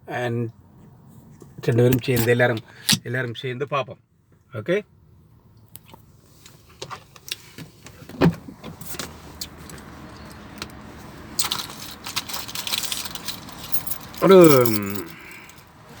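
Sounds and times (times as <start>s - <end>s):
keys jangling: 11.4s - 15.7s.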